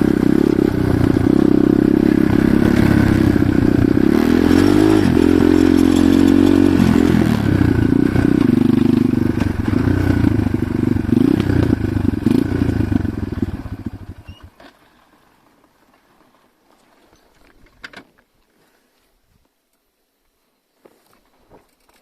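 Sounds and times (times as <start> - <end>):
motorcycle engine running: 0.0 - 14.5.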